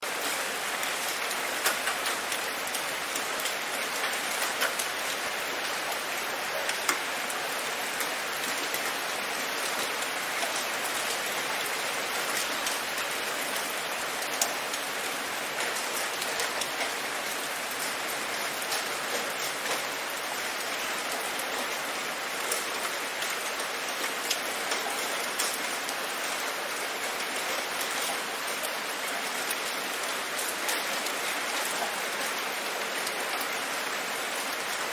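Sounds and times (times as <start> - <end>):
steady rain falling: 0.0 - 34.9
rain drop ticks: 0.1 - 6.0, 6.6 - 7.1, 9.6 - 21.7, 22.4 - 26.4.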